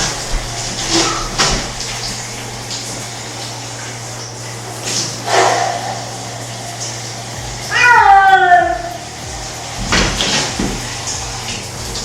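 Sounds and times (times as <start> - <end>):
low hum: 0.0 - 12.0
shower water running: 0.0 - 12.0
cat crying: 7.7 - 9.1.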